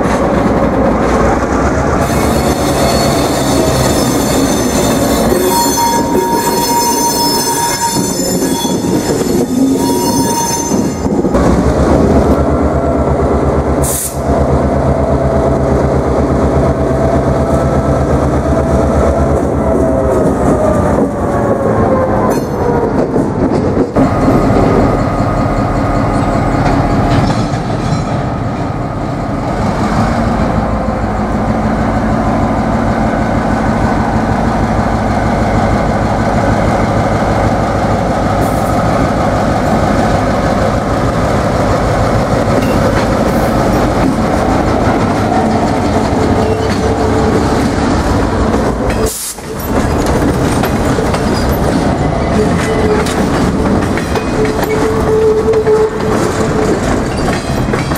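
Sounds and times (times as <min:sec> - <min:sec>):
locomotive engine humming: 0:11.0 - 0:57.9
steel wheels clattering on rails: 0:41.5 - 0:57.9.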